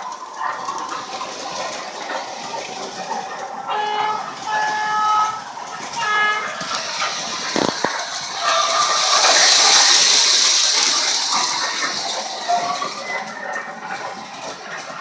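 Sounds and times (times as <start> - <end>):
model train running on track: 0.0 - 15.0
model train horn: 3.7 - 6.9.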